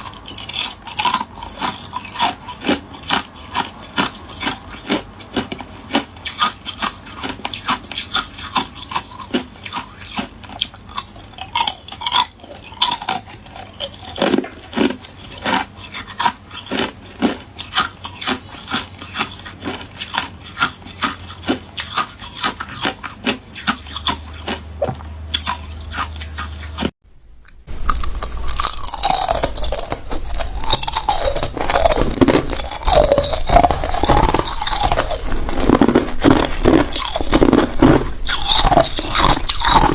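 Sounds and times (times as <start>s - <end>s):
ice cubes being crunched: 27.8s - 39.9s.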